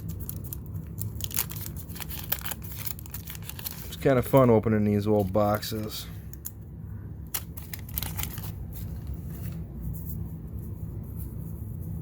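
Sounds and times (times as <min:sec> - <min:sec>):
cardboard cards shuffled by hand: 0:00.0 - 0:04.5, 0:07.3 - 0:12.0
steady low hum: 0:00.0 - 0:12.0.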